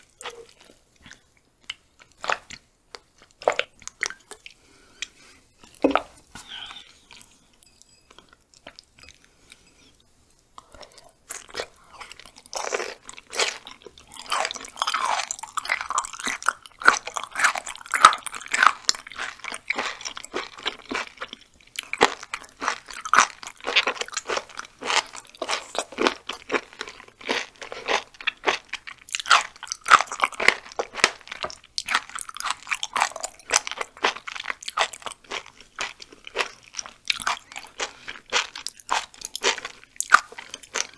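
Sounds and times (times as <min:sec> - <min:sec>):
crunchy chewing: 0:10.6 - 0:40.9.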